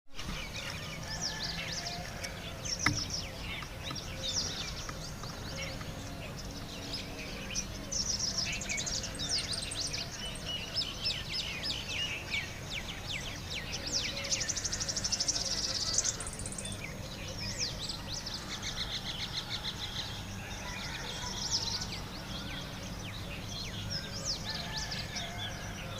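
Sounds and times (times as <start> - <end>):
small birds chirping: 0.1 - 25.9.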